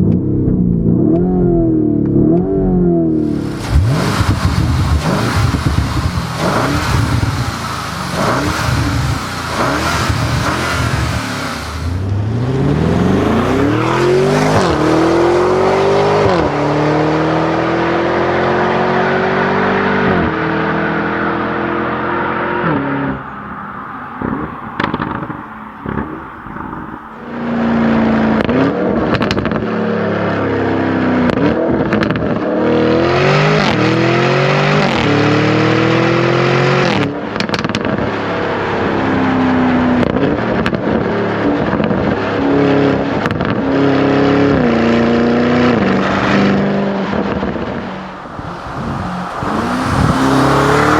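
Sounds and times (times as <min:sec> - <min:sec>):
exhaust crackles and pops: 0:00.0 - 0:16.6, 0:22.3 - 0:29.7, 0:31.2 - 0:32.4, 0:36.8 - 0:38.1, 0:43.2 - 0:43.6
car engine accelerating through upshifts: 0:00.0 - 0:50.9.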